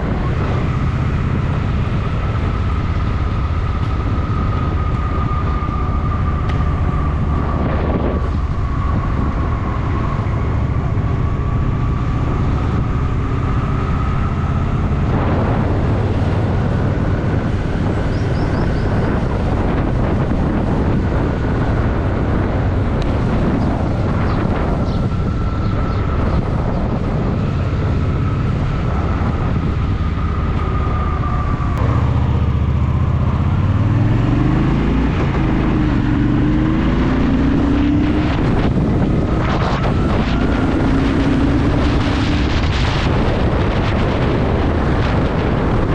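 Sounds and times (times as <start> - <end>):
motorcycle engine running: 0.0 - 45.9
wind noise: 0.0 - 45.9.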